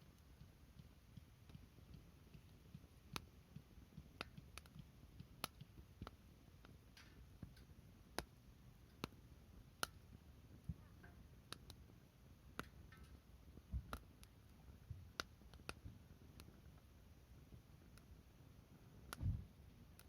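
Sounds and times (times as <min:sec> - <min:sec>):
faint low rumble: 0:00.0 - 0:20.0
wood fire crackling: 0:00.0 - 0:20.0.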